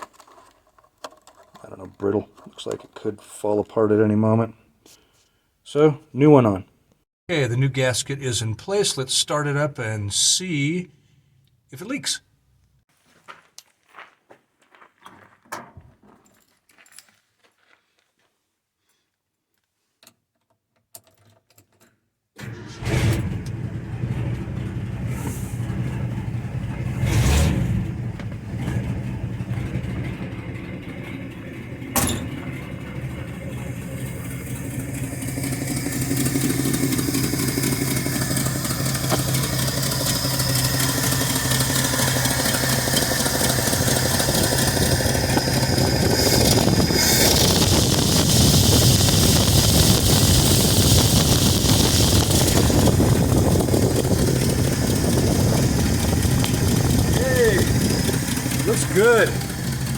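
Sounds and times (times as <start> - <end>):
truck engine starting and revving: 22.4 - 59.9.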